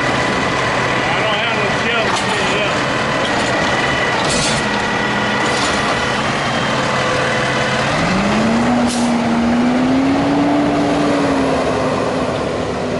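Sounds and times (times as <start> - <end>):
truck diesel engine revving: 0.0 - 12.9.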